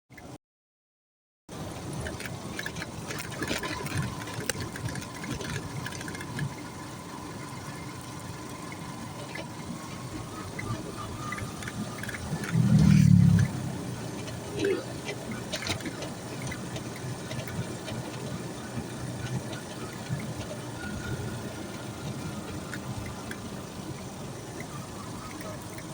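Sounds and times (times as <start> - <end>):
vehicle engine running: 1.5 - 25.9
light clicks and rattles: 2.0 - 6.8, 14.1 - 23.5
loud low rumble: 12.4 - 14.0.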